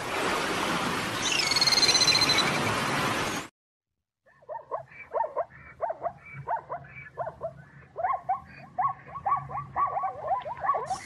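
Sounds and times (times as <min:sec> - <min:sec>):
zebras barking and yelping: 0:04.4 - 0:11.0.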